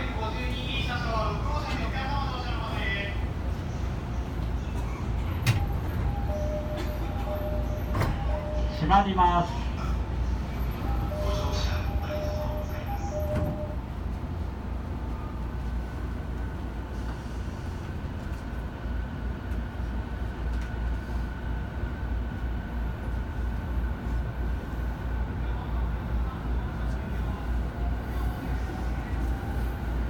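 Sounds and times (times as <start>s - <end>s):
train car rumbling: 0.0s - 30.0s
train door chime beeping: 5.3s - 9.4s, 10.4s - 14.0s.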